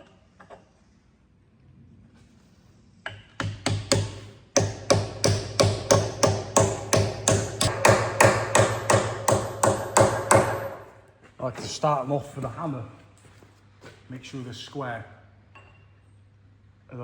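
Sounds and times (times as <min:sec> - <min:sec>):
hammer striking steel bush: 0:04.0 - 0:11.0.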